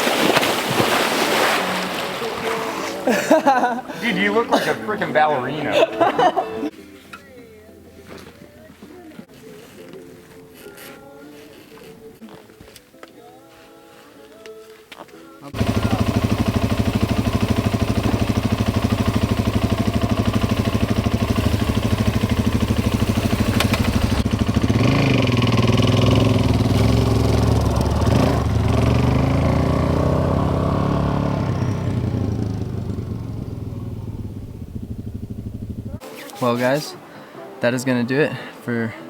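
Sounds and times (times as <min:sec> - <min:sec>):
motorcycle engine running: 0:15.5 - 0:36.0.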